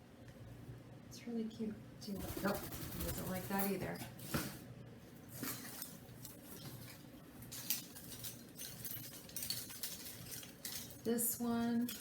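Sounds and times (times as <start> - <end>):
clicks and rustles of toys handled: 5.4 - 12.0.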